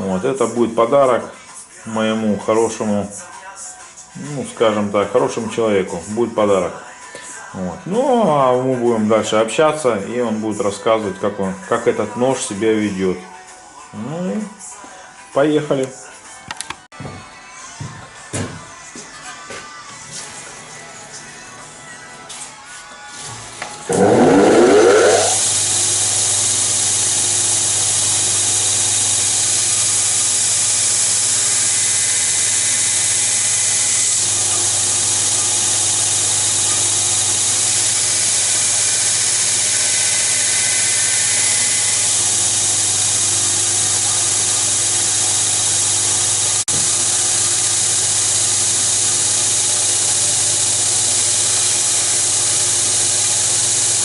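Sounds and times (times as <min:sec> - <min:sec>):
electric grinder motor whining: 0:23.8 - 0:54.0.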